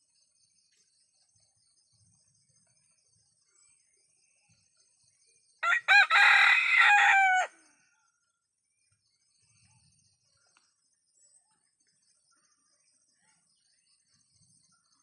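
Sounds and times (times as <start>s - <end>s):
rooster crowing: 5.6s - 7.7s.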